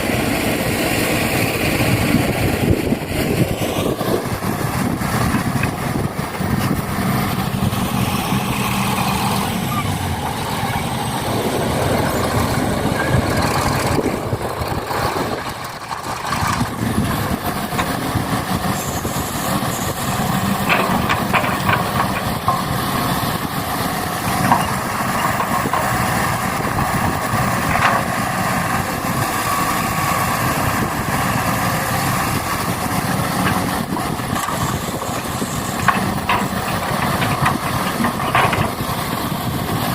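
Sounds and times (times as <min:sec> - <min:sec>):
truck engine running: 0:00.0 - 0:39.9
sharp clicks and knocks: 0:20.5 - 0:22.9, 0:33.4 - 0:38.9.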